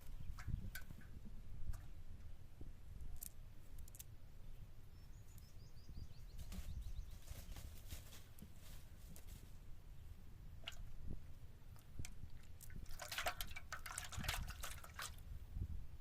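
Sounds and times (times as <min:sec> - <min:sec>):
bird chirping: 0:00.0 - 0:01.2, 0:03.9 - 0:07.8.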